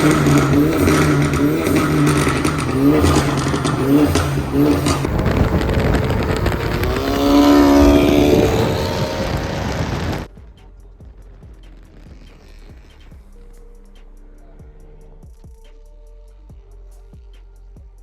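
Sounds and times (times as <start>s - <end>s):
exhaust pops: 0.0s - 13.4s
car engine revving: 0.0s - 13.6s.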